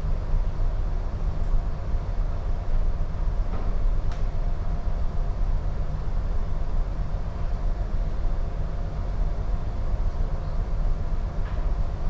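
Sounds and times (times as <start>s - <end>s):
ship engine rumble: 0.0s - 12.0s.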